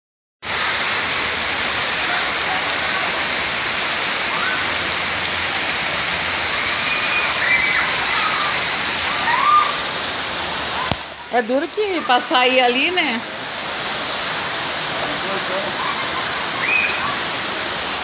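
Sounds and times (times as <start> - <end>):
heavy rain pouring: 0.4 - 18.0.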